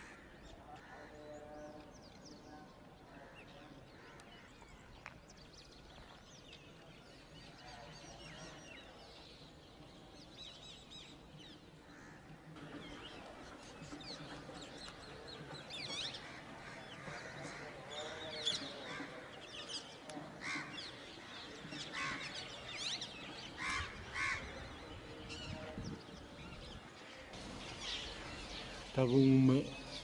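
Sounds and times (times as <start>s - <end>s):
birds chirping and calling: 0.0s - 30.0s.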